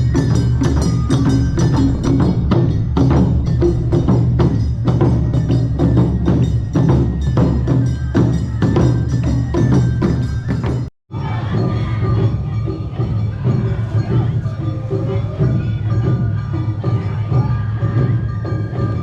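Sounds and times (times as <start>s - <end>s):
bell-like metal strikes: 0.0s - 19.0s
festival band music: 0.0s - 19.0s
rhythmic percussion strikes: 0.0s - 19.0s.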